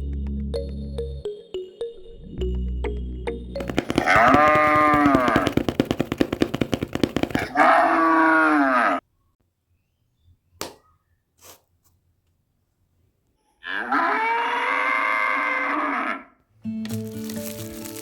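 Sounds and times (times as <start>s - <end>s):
cattle mooing: 7.5s - 9.0s, 13.6s - 16.3s.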